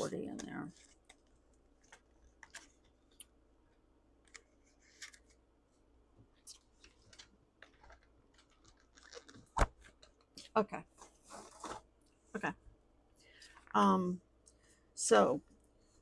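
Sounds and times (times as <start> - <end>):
paper banknotes rustling: 4.3 - 5.4, 6.8 - 10.1.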